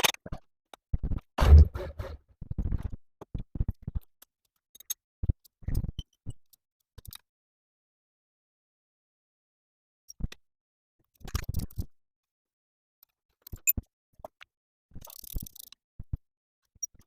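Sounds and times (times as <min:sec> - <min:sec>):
heavy thump: 0:01.4 - 0:02.2.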